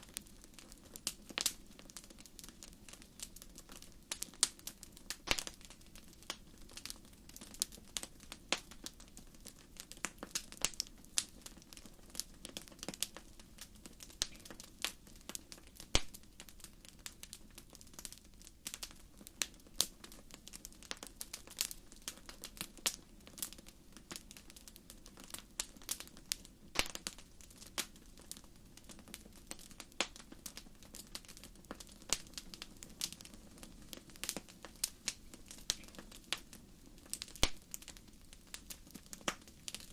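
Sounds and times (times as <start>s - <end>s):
wood fire crackling: 0.0s - 39.9s
low roar of flames: 16.6s - 39.9s.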